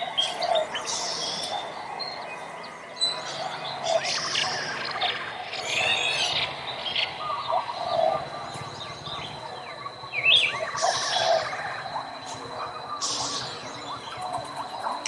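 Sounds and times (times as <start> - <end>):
songbirds chirping: 0.0 - 15.0
thin steady high tone: 3.8 - 15.0.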